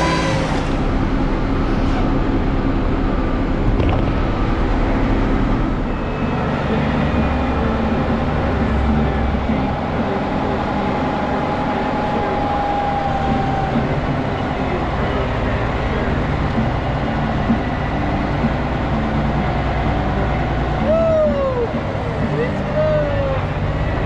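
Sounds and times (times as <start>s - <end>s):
short rising and falling whines: 0.0s - 3.6s
faint whine: 0.0s - 24.0s
truck engine running: 0.0s - 24.0s.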